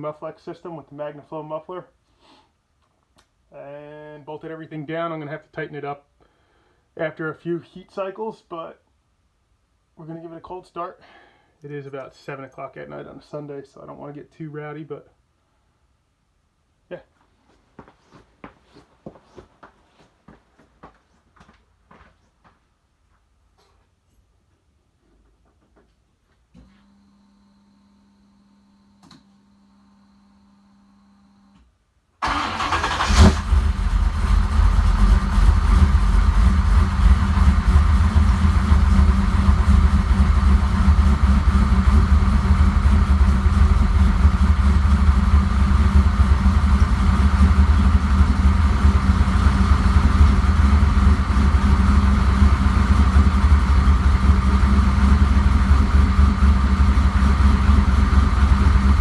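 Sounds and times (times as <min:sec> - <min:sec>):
car engine starting and idling: 0:32.2 - 0:59.0.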